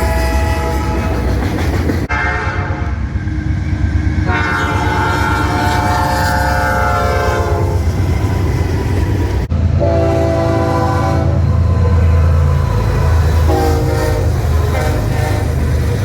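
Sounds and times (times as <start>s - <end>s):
locomotive air horn chord: 0.0s - 1.3s, 2.1s - 3.0s, 4.2s - 7.8s, 9.8s - 15.7s
freight train rumbling past: 0.0s - 16.0s.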